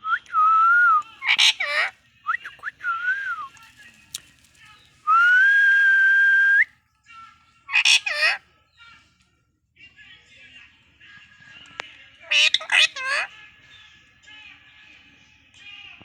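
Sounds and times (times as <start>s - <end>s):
parrot whistling: 0.7s - 3.6s, 7.7s - 8.4s, 12.3s - 13.3s
parrot squawking: 1.1s - 3.6s, 7.7s - 8.4s, 12.3s - 13.3s.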